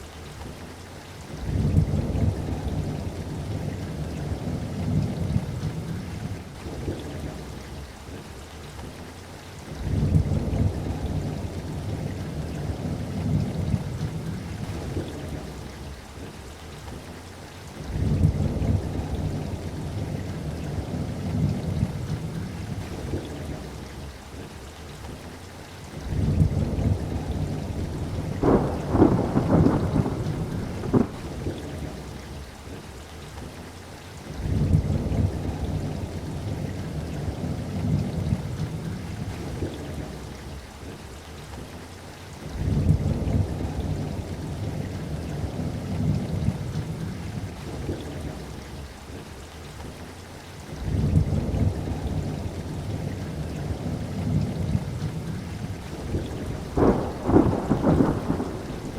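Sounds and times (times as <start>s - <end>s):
steady rain: 0.0s - 58.9s
thunder rolling: 26.2s - 31.9s, 55.8s - 58.9s
sharp thunder cracks: 28.0s - 31.6s, 56.1s - 58.9s.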